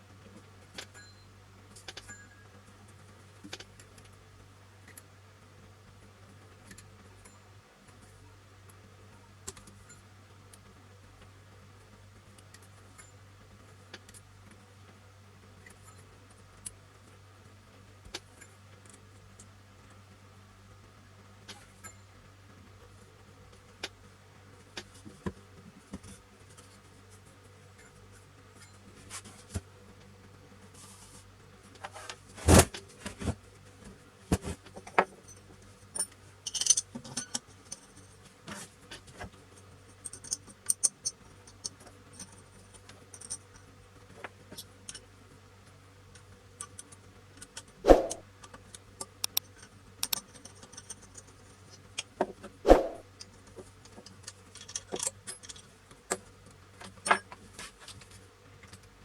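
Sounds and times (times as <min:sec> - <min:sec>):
metal tools clinking: 0:36.0 - 0:38.1.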